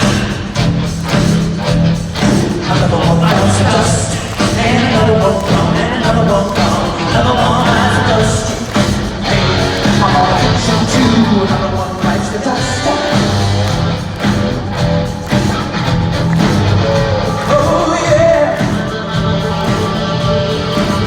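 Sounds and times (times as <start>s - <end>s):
live rock band with singing: 0.0s - 21.0s
strong bass line: 0.0s - 21.0s.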